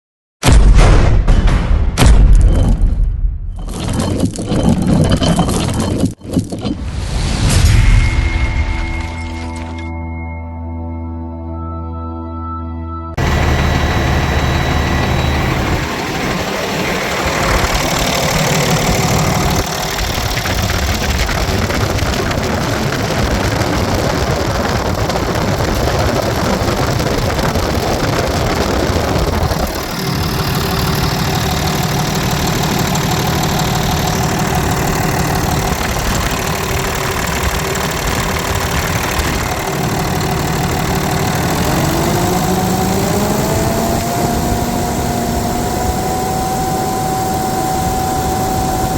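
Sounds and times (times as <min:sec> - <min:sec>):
diesel engine running: 0:13.2 - 0:48.9.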